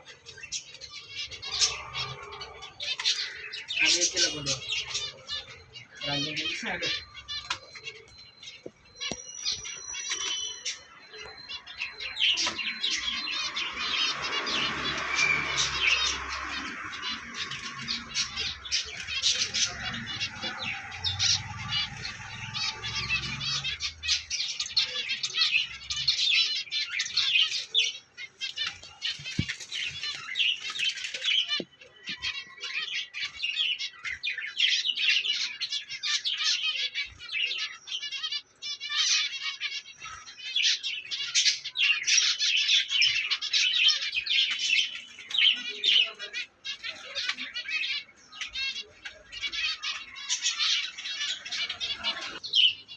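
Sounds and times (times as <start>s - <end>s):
finches chirping: 0.0s - 52.9s.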